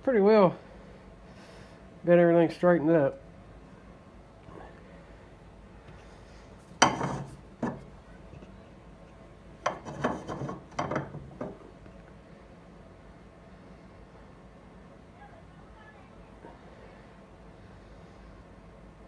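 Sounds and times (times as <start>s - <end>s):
hard objects knocking on workbench: 6.8s - 8.5s, 9.6s - 11.6s.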